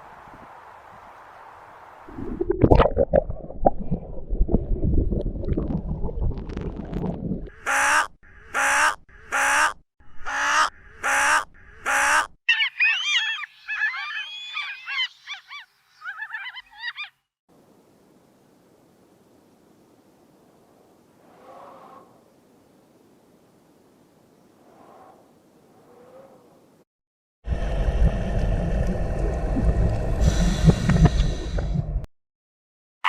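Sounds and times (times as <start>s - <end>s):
bird calling loudly: 7.6s - 17.3s.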